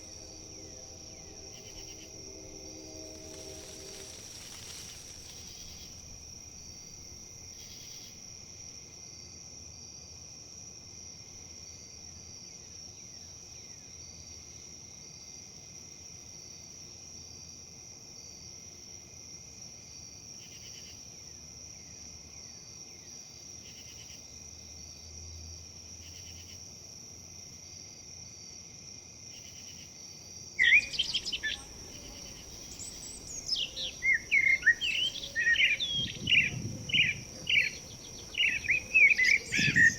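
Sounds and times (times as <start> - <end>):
crickets droning: 0.0 - 39.9
birds chirping: 30.6 - 39.9.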